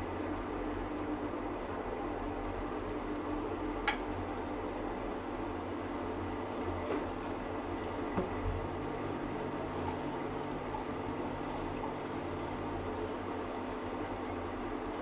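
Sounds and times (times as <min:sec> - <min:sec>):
water boiling in a pot: 0:00.0 - 0:15.0.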